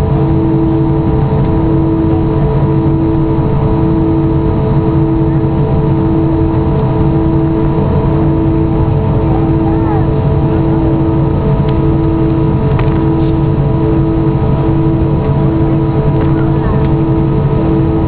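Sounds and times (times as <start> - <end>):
aircraft cabin drone: 0.0 - 18.0
pulsing tone: 0.0 - 18.0.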